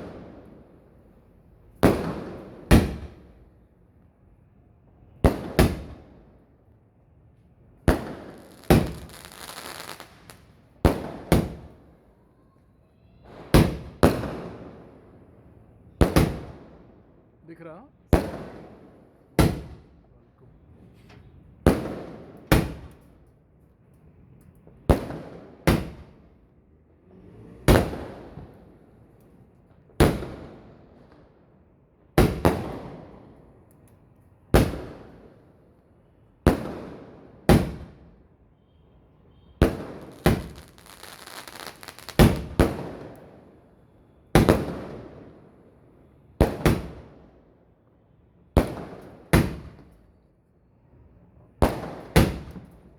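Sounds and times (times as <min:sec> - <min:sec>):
fireworks bangs with echo: 0:01.8 - 0:03.4, 0:05.2 - 0:06.2, 0:07.8 - 0:11.9, 0:13.2 - 0:15.0, 0:16.0 - 0:16.9, 0:18.1 - 0:20.0, 0:21.6 - 0:23.2, 0:24.7 - 0:26.4, 0:27.5 - 0:29.0, 0:29.9 - 0:31.2, 0:32.1 - 0:33.4, 0:34.5 - 0:35.4, 0:36.5 - 0:38.2, 0:39.6 - 0:43.6, 0:44.3 - 0:45.6, 0:46.4 - 0:47.3, 0:48.6 - 0:50.0, 0:51.6 - 0:52.9
fireworks fizzing crackle: 0:07.9 - 0:10.7, 0:39.8 - 0:42.8.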